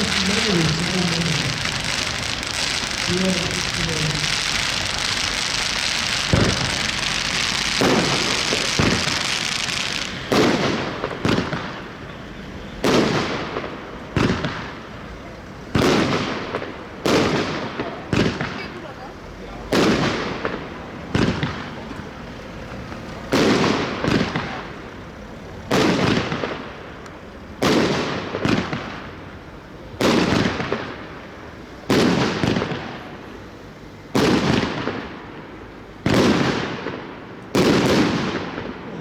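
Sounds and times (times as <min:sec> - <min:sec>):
rumbling echo: 0:00.0 - 0:12.0
firework bangs: 0:00.0 - 0:39.0.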